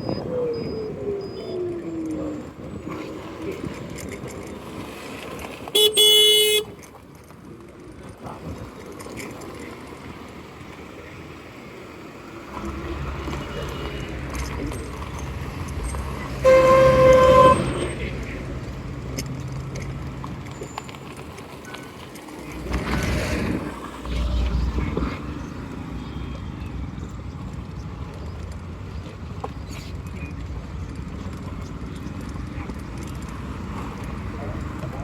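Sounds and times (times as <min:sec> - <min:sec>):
engine droning: 0:00.0 - 0:35.0
road traffic noise: 0:00.0 - 0:35.0
vehicle horns honking: 0:05.8 - 0:06.8, 0:16.3 - 0:18.4.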